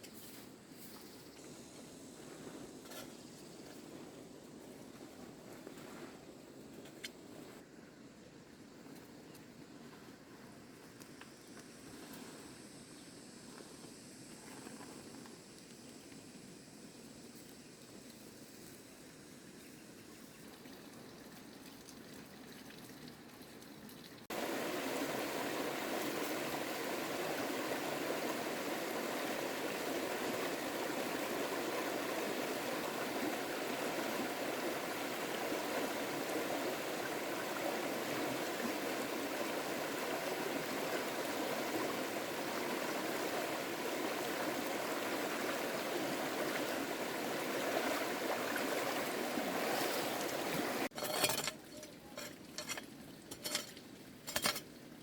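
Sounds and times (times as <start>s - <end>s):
faint hiss: 0.0s - 50.9s
rush of flowing water: 19.9s - 55.0s.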